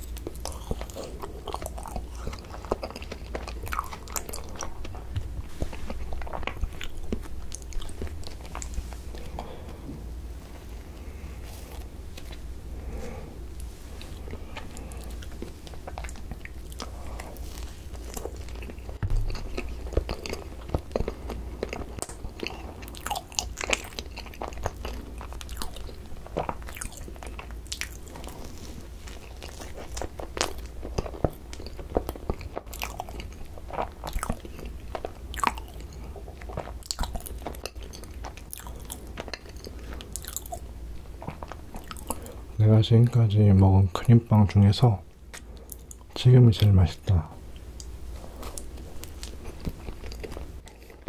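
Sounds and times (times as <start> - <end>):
biting and chewing bun: 0.0 - 46.7, 47.5 - 51.0
steady low hum: 0.0 - 51.0.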